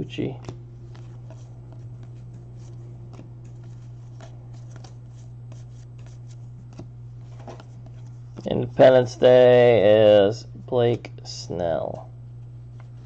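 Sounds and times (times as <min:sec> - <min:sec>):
steady low hum: 0:00.0 - 0:13.0
trading cards flipped through: 0:00.4 - 0:08.5.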